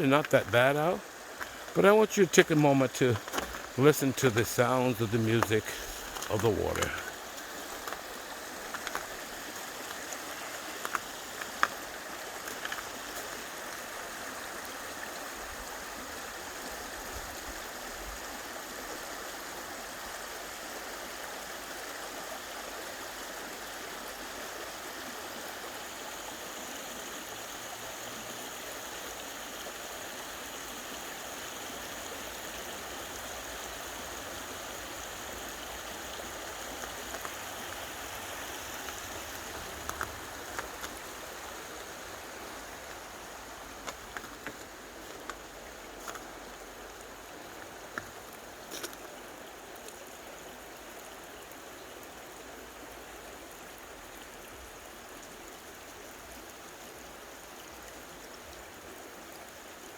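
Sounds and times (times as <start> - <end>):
brook running: 0.0 - 59.9.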